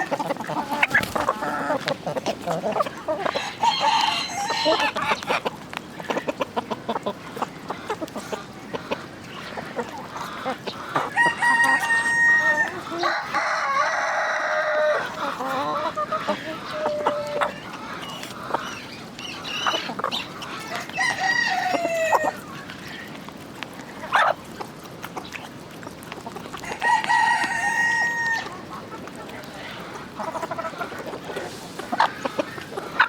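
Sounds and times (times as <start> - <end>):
hens clucking: 0.0 - 33.0
roosters crowing: 2.5 - 5.3, 10.2 - 22.5, 26.6 - 28.7.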